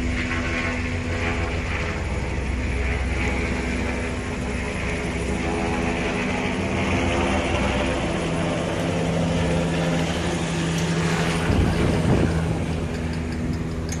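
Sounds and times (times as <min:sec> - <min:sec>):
helicopter engine and rotor: 0:00.0 - 0:14.0.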